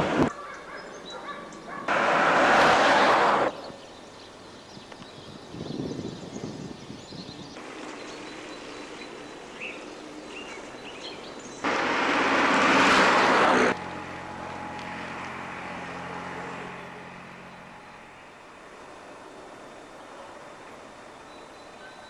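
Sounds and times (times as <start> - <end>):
birds chirping: 0.3 - 1.9, 3.4 - 11.8, 15.5 - 22.0
engine hum: 1.0 - 5.6, 7.4 - 22.0
loud rushing noise: 1.9 - 3.7, 11.6 - 17.4.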